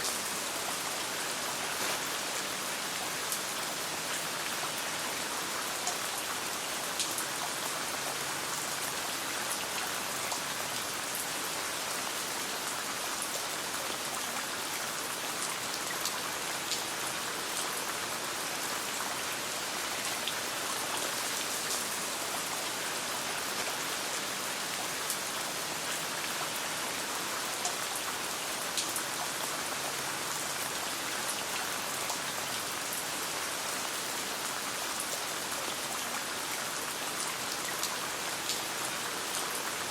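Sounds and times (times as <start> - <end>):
rain pattering on tent: 0.0 - 30.8.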